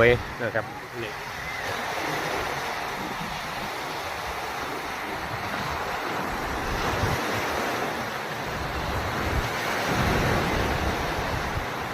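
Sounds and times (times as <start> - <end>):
sea surf washing ashore: 0.0 - 11.9
wind buffeting microphone: 0.0 - 11.9.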